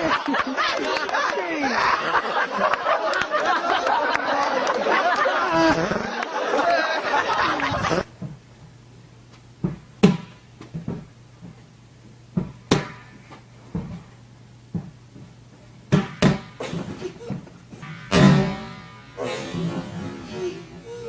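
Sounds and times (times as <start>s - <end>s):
knocks and thumps: 9.6s - 11.6s, 12.3s - 14.1s, 14.7s - 18.8s.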